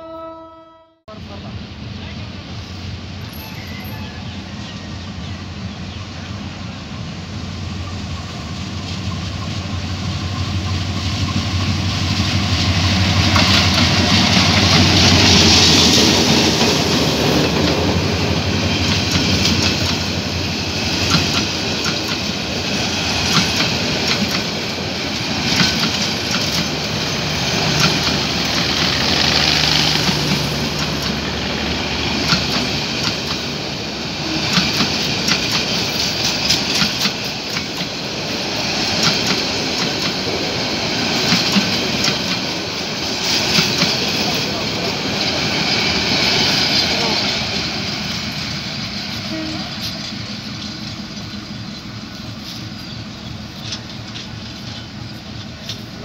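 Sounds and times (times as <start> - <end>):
diesel locomotive engine hum: 0.0 - 56.0
train wheels clattering on rail joints: 12.5 - 31.3, 32.1 - 33.6, 34.4 - 38.0, 38.6 - 56.0.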